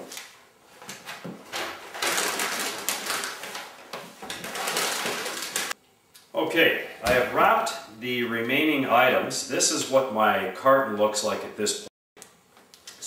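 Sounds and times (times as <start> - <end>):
packing paper rustling and crinkling: 0.0 - 5.8.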